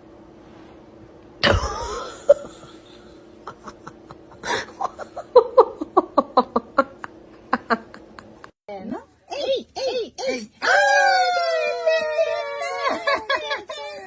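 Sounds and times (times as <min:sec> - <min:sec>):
person laughing: 0:01.4 - 0:08.5, 0:11.4 - 0:14.0.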